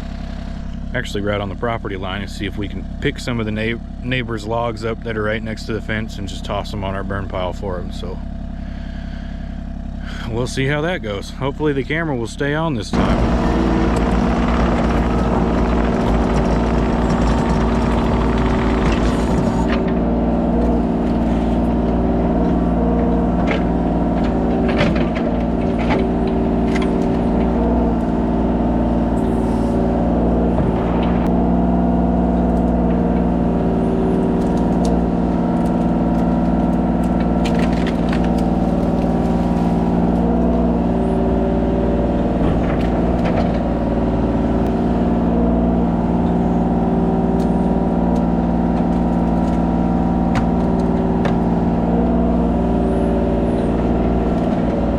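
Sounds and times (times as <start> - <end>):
diesel engine running: 0.0 - 54.9
machine knocks and clatter: 13.0 - 29.4, 30.1 - 31.5, 32.2 - 46.4.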